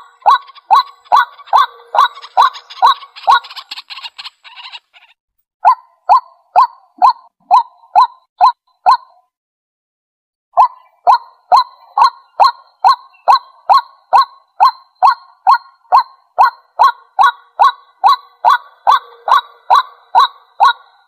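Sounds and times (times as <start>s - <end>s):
waterhen honking calls: 0.0s - 5.2s, 10.6s - 21.0s.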